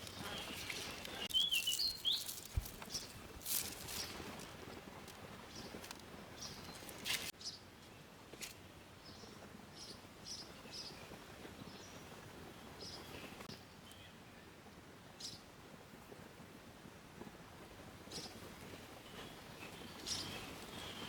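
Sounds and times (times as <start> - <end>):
small birds chirping: 0.0 - 4.7, 5.3 - 7.7, 9.0 - 14.2, 18.1 - 21.0.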